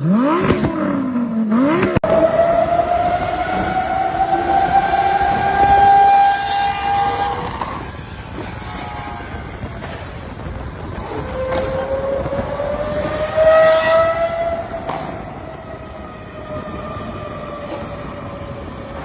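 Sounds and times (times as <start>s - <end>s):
car engine at high revs: 0.0s - 7.6s, 11.0s - 16.0s.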